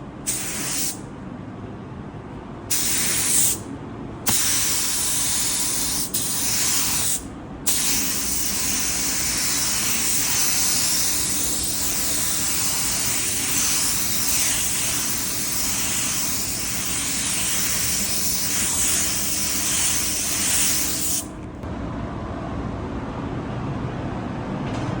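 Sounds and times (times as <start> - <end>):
paint spray gun hissing: 0.3 - 1.0, 2.7 - 3.6, 4.3 - 21.4.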